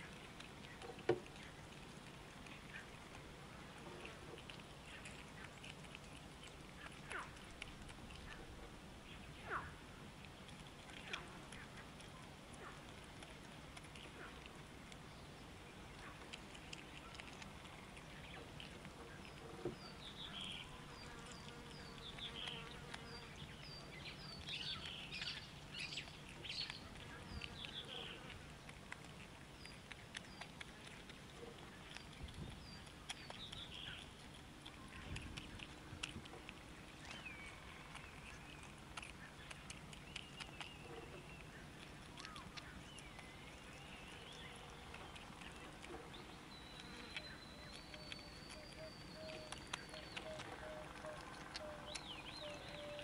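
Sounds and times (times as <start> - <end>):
birds chirping: 13.8 - 28.7, 29.5 - 53.0.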